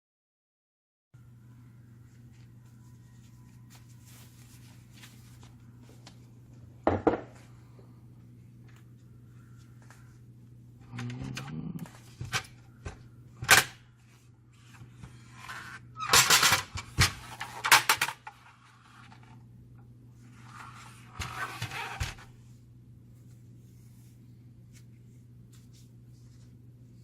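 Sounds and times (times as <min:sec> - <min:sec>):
steady low hum: 0:01.2 - 0:27.0
rustling: 0:02.1 - 0:06.2
clattering parts: 0:16.1 - 0:18.4.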